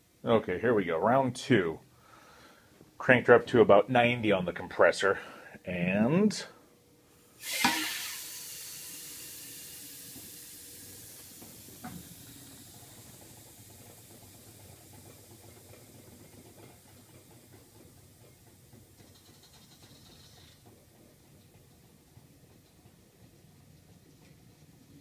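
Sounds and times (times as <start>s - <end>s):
compressed air hissing: 7.4s - 14.1s.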